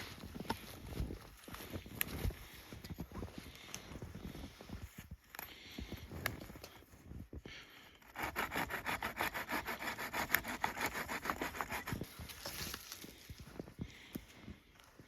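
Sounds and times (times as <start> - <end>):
hand saw cutting wood: 8.0 - 12.6.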